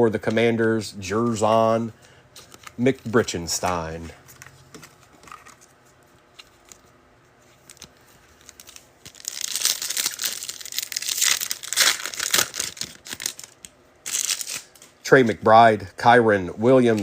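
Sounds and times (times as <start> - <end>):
foil wrapper tearing and crinkling: 7.6 - 14.8.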